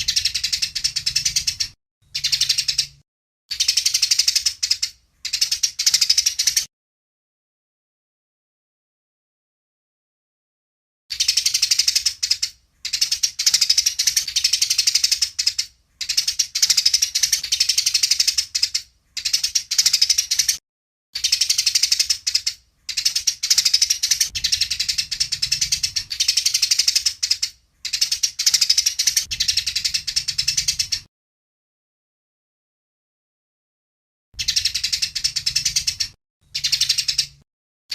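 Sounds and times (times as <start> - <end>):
sparrows chattering harshly: 0.0 - 6.7, 11.1 - 20.6, 21.2 - 31.1, 34.4 - 37.4.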